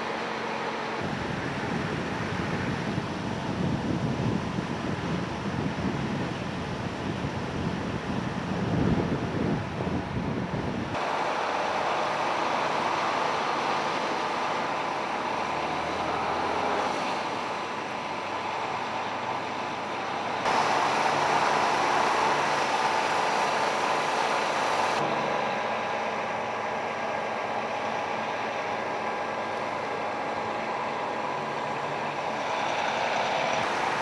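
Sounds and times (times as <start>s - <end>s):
traffic engines running: 0.0s - 34.0s.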